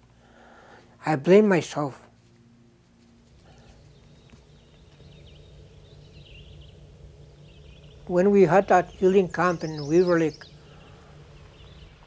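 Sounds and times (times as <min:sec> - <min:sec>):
low steady rumble: 0:00.0 - 0:12.0
distant bird chirps: 0:03.4 - 0:12.0.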